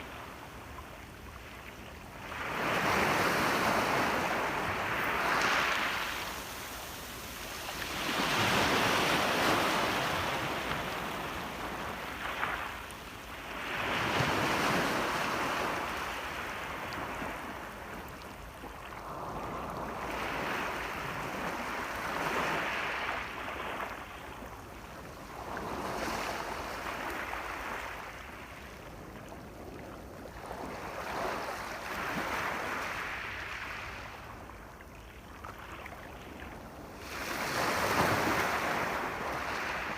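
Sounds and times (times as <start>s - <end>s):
sea waves breaking on shore: 0.0s - 24.3s, 35.4s - 39.9s.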